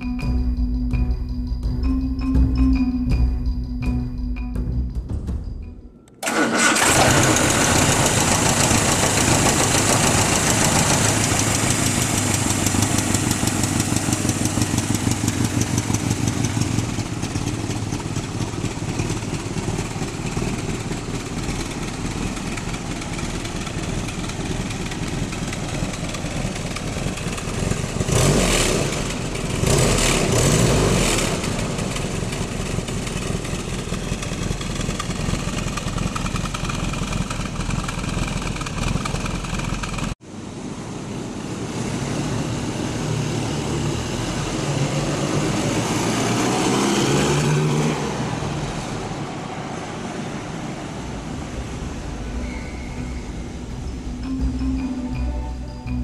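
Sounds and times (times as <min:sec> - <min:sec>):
throttle blips: 0:00.0 - 0:05.0
car engine idling: 0:06.0 - 0:40.2, 0:50.2 - 0:56.0.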